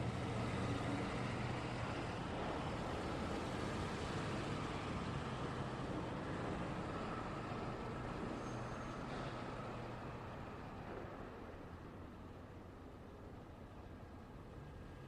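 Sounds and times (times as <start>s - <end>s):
passing traffic noise: 0.0s - 15.0s
brief high squeak: 8.4s - 9.3s.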